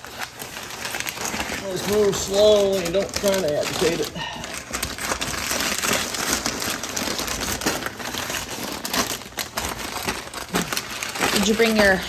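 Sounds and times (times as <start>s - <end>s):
insulation crinkling and rustling: 0.0s - 12.0s.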